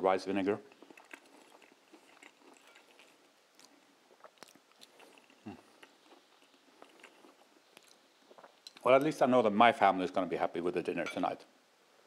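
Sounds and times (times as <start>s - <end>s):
chewing crunchy food: 0.6s - 8.9s.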